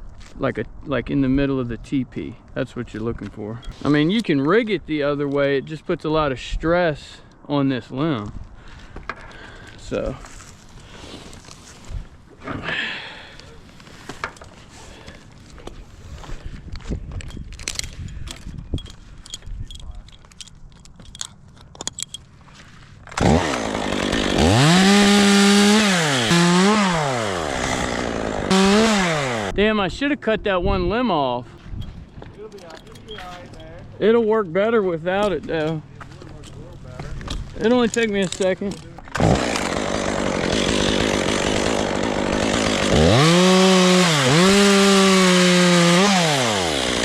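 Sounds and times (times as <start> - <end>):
chainsaw engine revving: 23.2 - 29.5, 39.1 - 47.0.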